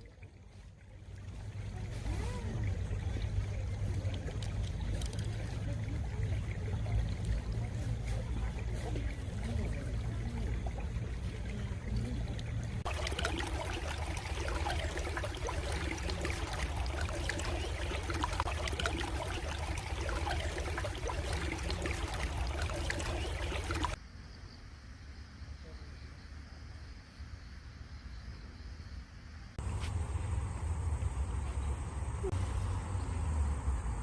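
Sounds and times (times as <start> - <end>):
stream water babbling: 0.0 - 24.0.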